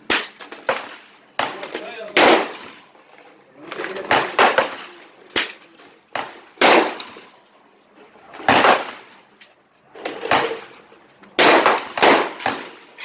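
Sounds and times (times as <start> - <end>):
loud rifle shots: 0.0 - 2.9, 4.0 - 7.3, 8.3 - 9.2, 11.4 - 12.8
sharp gunshot cracks: 2.2 - 2.8, 4.1 - 5.6, 6.2 - 7.3, 8.5 - 9.2, 11.4 - 12.7.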